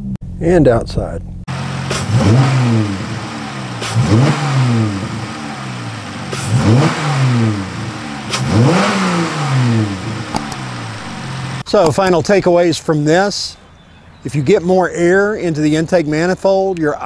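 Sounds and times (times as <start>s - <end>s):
car engine revving: 1.5s - 11.7s.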